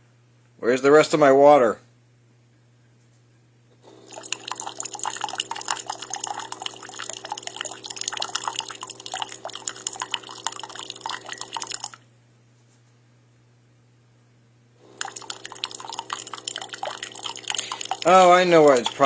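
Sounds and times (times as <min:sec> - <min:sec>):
coffee maker pump hum: 0:03.8 - 0:12.1, 0:14.8 - 0:19.0
water sputtering and dripping: 0:03.9 - 0:12.0, 0:14.9 - 0:19.0.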